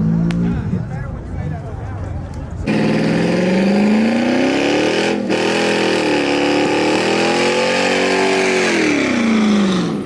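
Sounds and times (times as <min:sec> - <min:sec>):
truck engine revving: 0:02.6 - 0:10.0.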